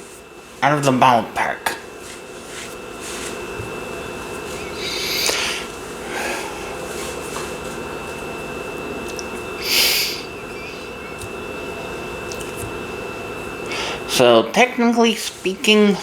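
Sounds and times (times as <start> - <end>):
person breathing and sniffing: 4.5 - 7.2, 9.6 - 10.3, 13.7 - 14.1.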